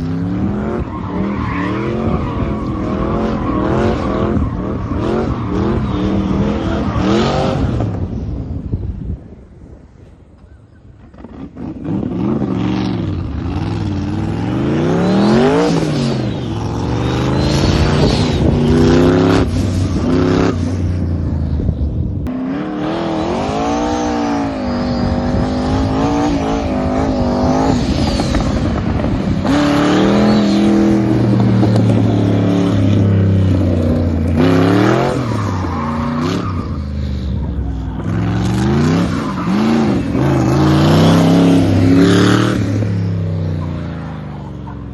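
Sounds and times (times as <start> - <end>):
faint tyre squeals: 0.0 - 8.3, 14.7 - 20.0, 29.6 - 42.0, 42.8 - 44.9.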